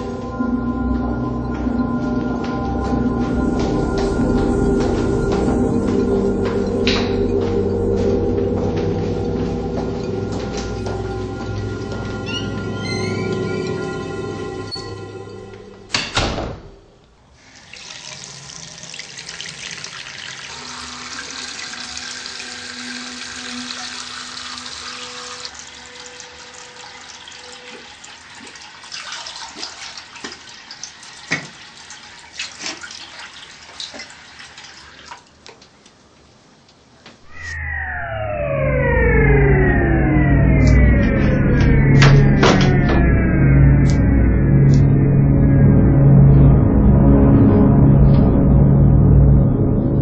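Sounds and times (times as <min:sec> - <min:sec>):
water splashes: 0:17.4 - 0:35.8
tap running into a sink: 0:31.2 - 0:31.7.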